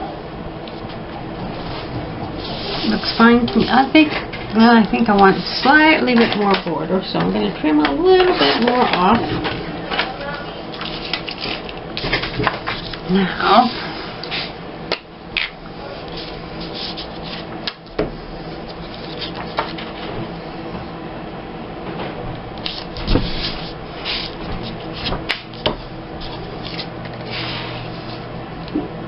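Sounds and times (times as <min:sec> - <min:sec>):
paper rustling: 0:08.1 - 0:13.0, 0:15.9 - 0:17.5, 0:18.4 - 0:20.1, 0:22.6 - 0:28.2.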